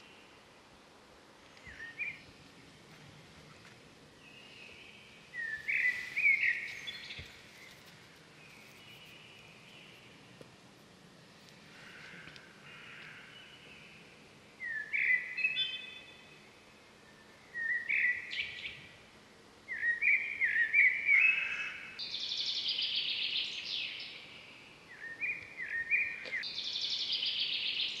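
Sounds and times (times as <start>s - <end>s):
songbird singing with trill: 1.5s - 2.4s, 4.2s - 7.8s, 14.6s - 19.0s, 19.7s - 28.0s.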